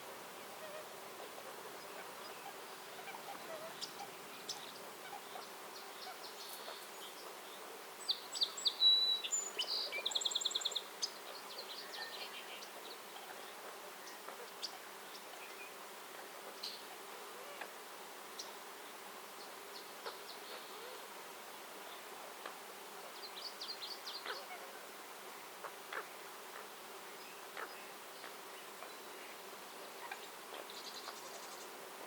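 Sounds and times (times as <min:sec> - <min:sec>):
faint bird chirps: 0:00.5 - 0:15.8, 0:27.2 - 0:31.8
songbird singing with trill: 0:01.8 - 0:15.8, 0:23.1 - 0:24.4, 0:30.1 - 0:31.8.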